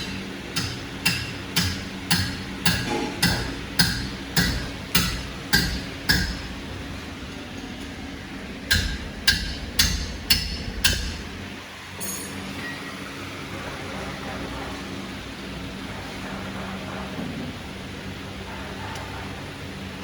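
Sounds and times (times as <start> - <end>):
metal-on-metal taps: 8.7 - 11.3.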